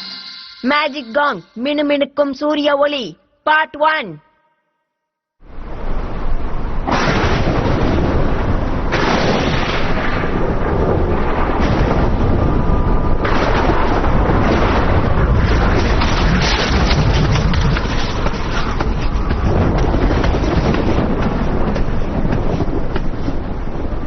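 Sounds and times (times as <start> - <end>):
faint steady ringing tone: 0.0 - 1.7
cartoon thunder rumbling: 5.7 - 24.0.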